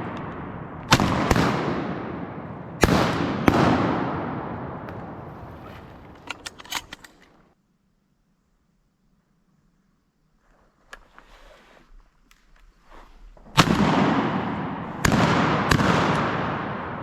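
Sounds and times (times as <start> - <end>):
shotgun blasts with echo: 0.0 - 6.2, 13.5 - 17.0.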